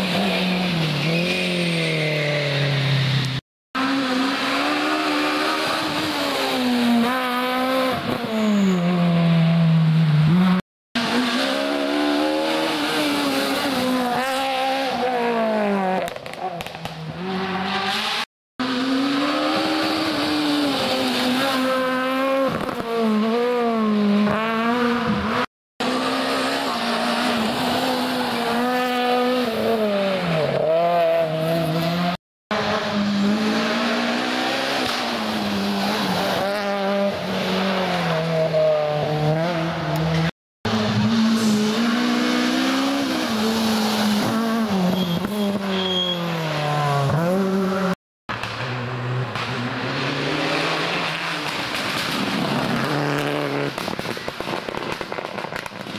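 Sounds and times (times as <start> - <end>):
rally car engines revving: 0.0 - 55.8.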